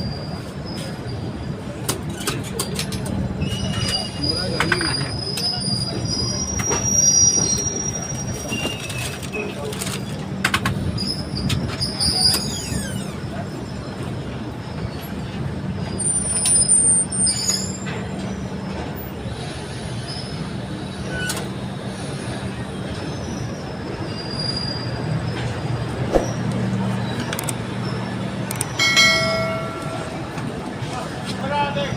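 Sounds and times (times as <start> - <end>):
passenger train rumbling on rails: 0.0 - 31.9
clicks: 28.5 - 30.5.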